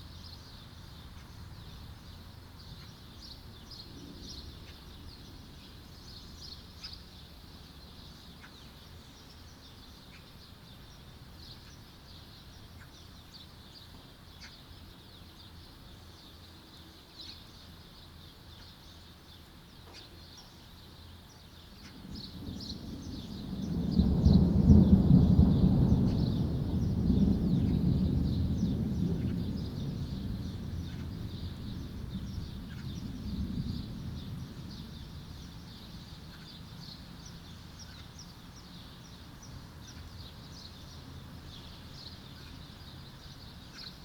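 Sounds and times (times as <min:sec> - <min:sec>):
small birds chirping: 0:00.0 - 0:44.0
thunder rumbling: 0:22.0 - 0:35.8.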